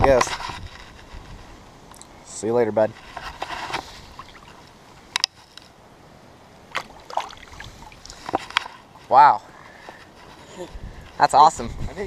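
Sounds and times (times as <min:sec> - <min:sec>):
rushing creek water: 0:03.5 - 0:05.1, 0:05.8 - 0:09.9
fish splashing in water: 0:06.7 - 0:08.2.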